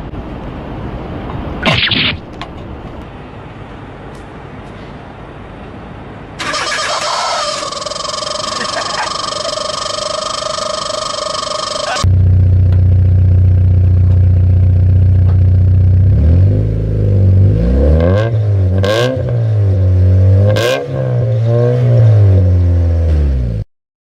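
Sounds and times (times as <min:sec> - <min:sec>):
car engine exhaust revving: 0:06.4 - 0:23.6
exhaust cracks: 0:06.4 - 0:23.6.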